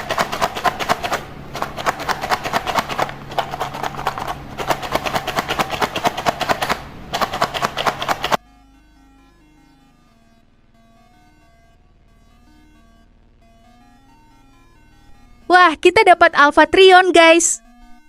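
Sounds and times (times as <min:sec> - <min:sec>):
plastic parts rattling in a box: 0:00.0 - 0:08.4.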